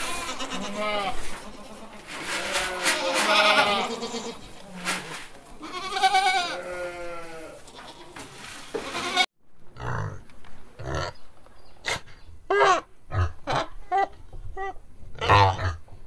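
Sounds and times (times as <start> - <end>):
sheep bleating: 0.0 - 4.7, 5.6 - 8.2, 8.8 - 9.9
pig grunts: 9.8 - 10.2, 13.1 - 13.8, 15.2 - 15.8.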